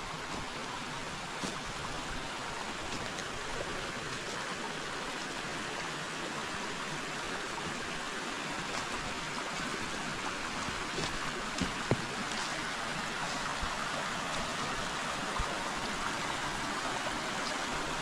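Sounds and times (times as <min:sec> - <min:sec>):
river rushing and babbling: 0:00.0 - 0:18.0
faint ticks and splashes: 0:00.1 - 0:18.0.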